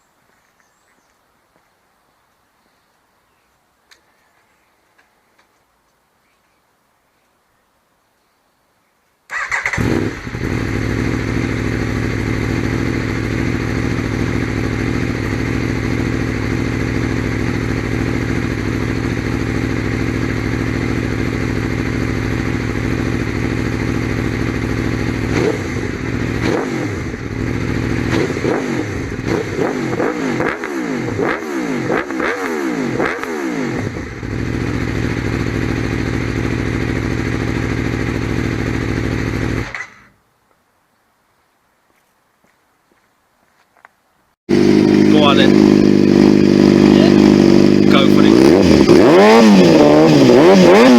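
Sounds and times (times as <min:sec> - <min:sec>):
motorcycle engine idling and revving: 0:09.3 - 0:40.1, 0:44.5 - 0:50.9.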